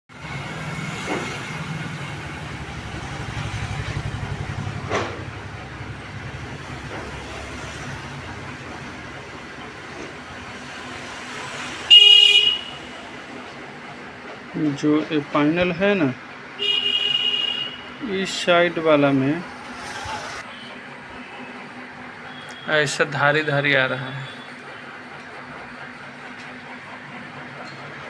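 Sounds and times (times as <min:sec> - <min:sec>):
road traffic noise: 0:00.1 - 0:28.0
vehicle horn blast: 0:11.8 - 0:13.0, 0:16.6 - 0:18.0.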